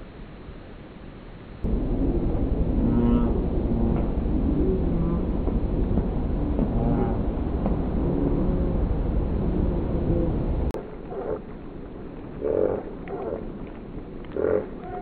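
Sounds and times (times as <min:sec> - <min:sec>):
deep steady rumble: 0:00.0 - 0:15.0
slowed-down bird calls: 0:12.4 - 0:13.5.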